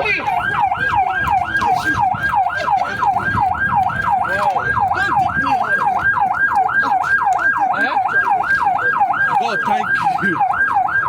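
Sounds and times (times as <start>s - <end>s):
emergency siren on fast yelp: 0.0s - 11.0s.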